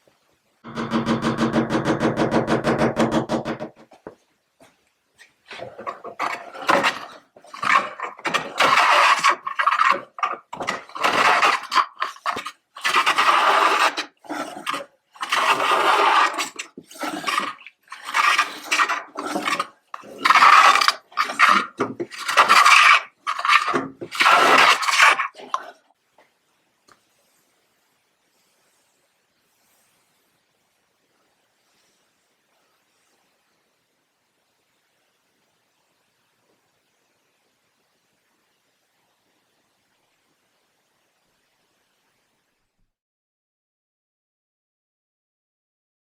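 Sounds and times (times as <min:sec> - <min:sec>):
hand plane shaving wood: 0:05.5 - 0:25.7.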